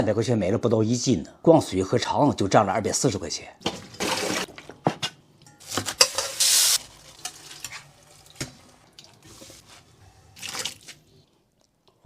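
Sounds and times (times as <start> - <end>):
food sizzling in a pan: 6.0 - 6.8.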